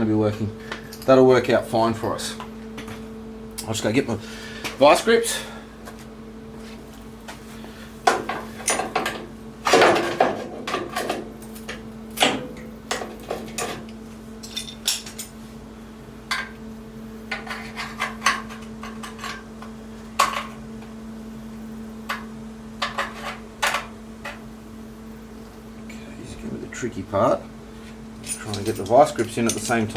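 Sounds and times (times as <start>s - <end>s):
steady low hum: 0.0s - 29.9s
metal hand tools clinking: 28.2s - 29.9s.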